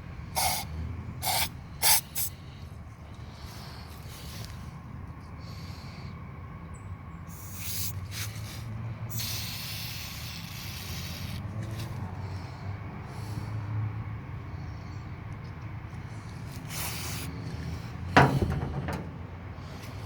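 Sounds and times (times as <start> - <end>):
aerosol spray hissing: 0.4 - 0.6, 1.2 - 2.3, 9.1 - 11.4.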